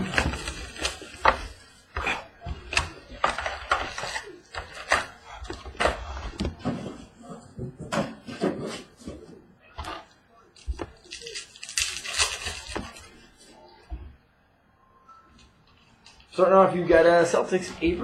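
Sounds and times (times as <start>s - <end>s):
cardboard and wrapper crackling: 0.0s - 6.4s, 9.9s - 13.5s.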